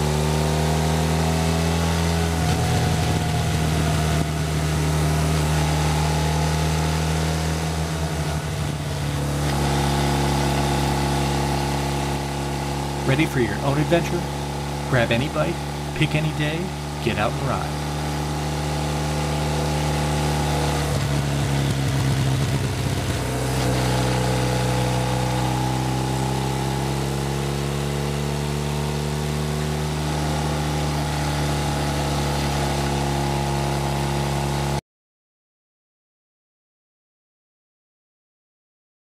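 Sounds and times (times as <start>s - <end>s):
motorcycle engine running: 0.0s - 34.8s.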